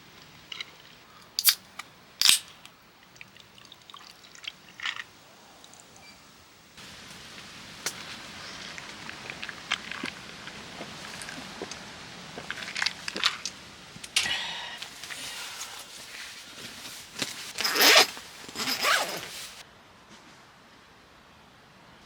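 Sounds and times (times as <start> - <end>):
background hiss: 0.0 - 22.0
scraping rustling handling noises: 14.8 - 20.3.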